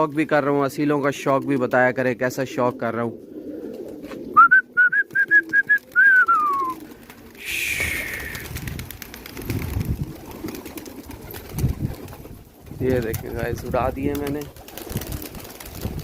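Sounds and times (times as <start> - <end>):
person whistling: 4.4 - 6.8, 7.4 - 8.5
rushing hiss: 7.4 - 8.4
wind rumble on microphone: 7.8 - 10.4, 11.4 - 16.0.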